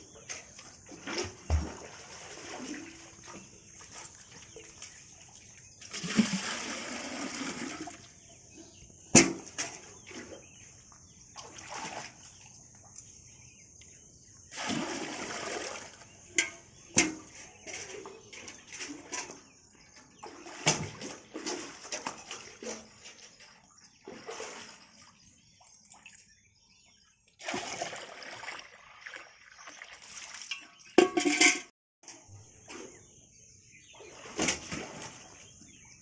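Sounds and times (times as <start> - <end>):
water splashing: 0.0 - 8.3, 14.5 - 17.8, 20.2 - 26.2, 27.4 - 31.5, 34.0 - 35.5.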